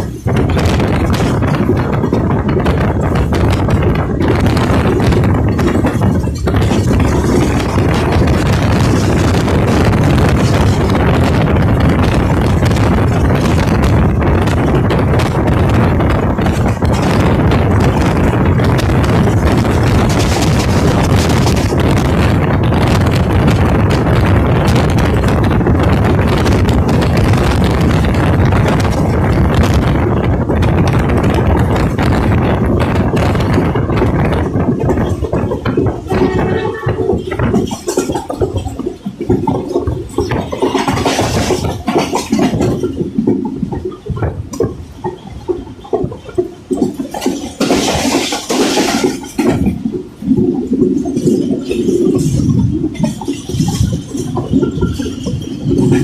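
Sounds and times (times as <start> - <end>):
passenger train running: 0.0 - 56.0
wind rushing and buffeting microphone: 0.0 - 56.0.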